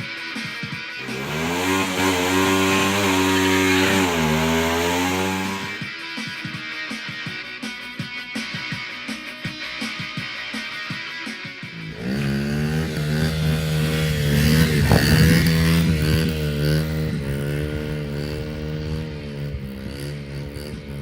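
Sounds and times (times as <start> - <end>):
vehicle engine revving: 1.0 - 5.8, 11.9 - 21.0.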